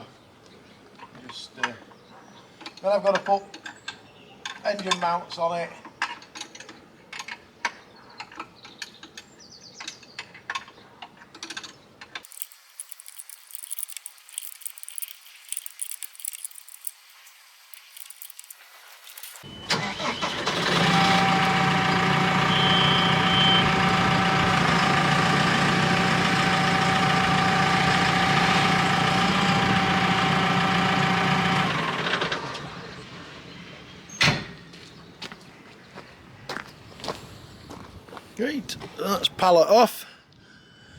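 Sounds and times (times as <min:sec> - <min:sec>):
forklift motor humming and whining: 0:19.5 - 0:33.5.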